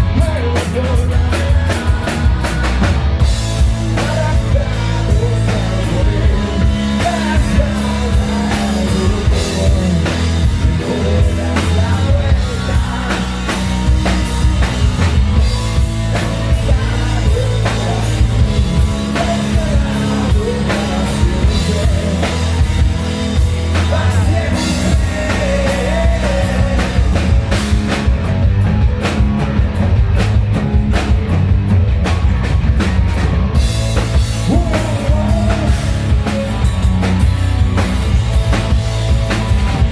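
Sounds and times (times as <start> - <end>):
person singing: 0.0 - 14.8, 16.2 - 27.8, 34.3 - 36.6
drum kit beat: 0.0 - 39.9
hard rock band playing: 0.0 - 39.9.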